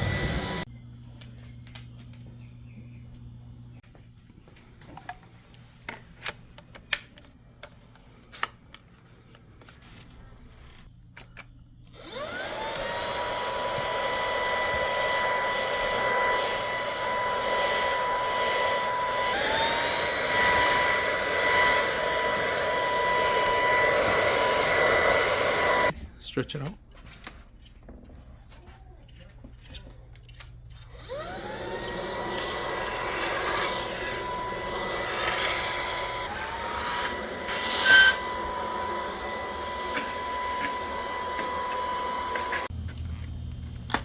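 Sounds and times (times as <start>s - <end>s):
stick vacuum motor whining: 0.0s - 0.7s, 11.9s - 26.0s, 30.9s - 42.7s.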